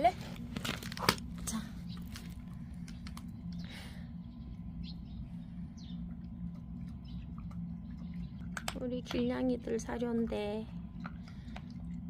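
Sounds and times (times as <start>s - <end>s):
steady low hum: 0.0s - 12.0s
dog crunching dry kibble: 0.3s - 3.6s.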